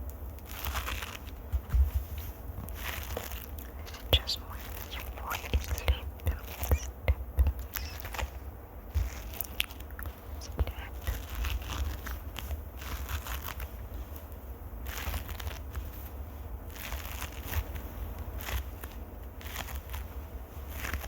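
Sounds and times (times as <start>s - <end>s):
crackling and scratching: 0.0s - 21.0s.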